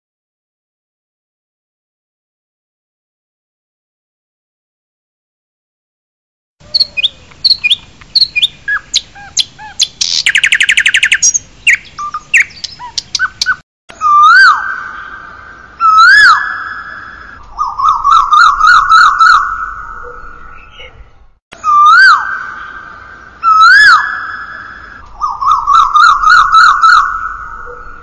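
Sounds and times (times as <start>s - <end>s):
bird whistled calls: 6.6s - 28.0s
birds chirping: 6.6s - 28.0s.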